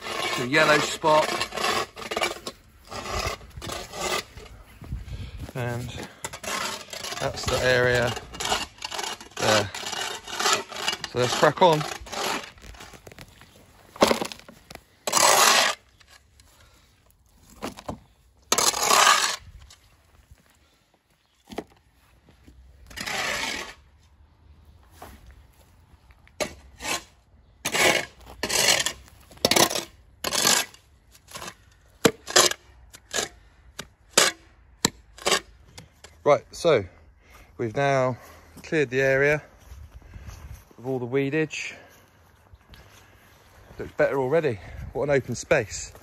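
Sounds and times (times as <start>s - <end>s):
hand scraper rasping on paving: 0.0s - 4.6s, 5.7s - 13.1s, 15.0s - 16.2s, 18.5s - 19.6s, 22.9s - 23.9s, 26.4s - 35.9s.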